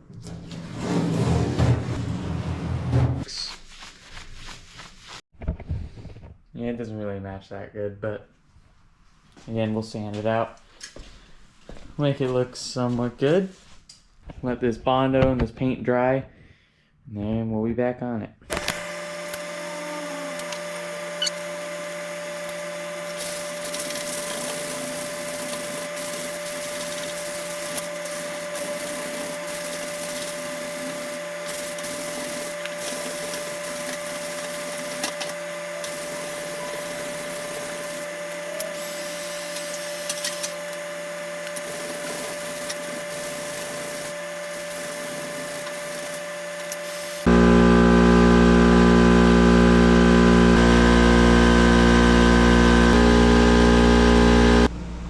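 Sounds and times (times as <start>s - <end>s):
small electric motor humming: 18.5s - 54.7s.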